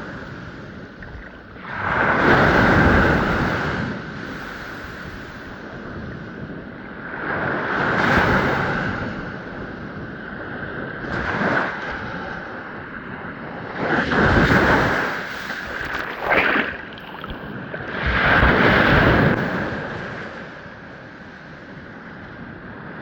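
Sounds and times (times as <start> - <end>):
ocean waves breaking on shore: 0.0 - 23.0.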